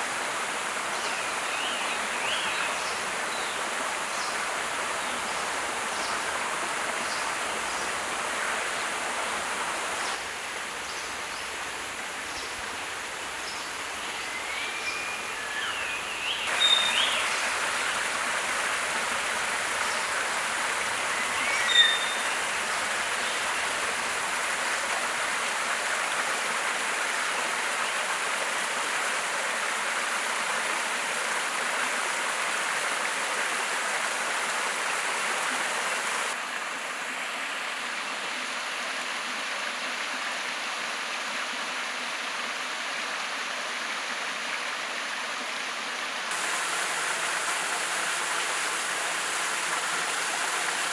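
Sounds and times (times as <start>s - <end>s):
stream rushing: 0.0s - 50.9s
bird chirps: 14.3s - 17.3s, 21.4s - 22.4s.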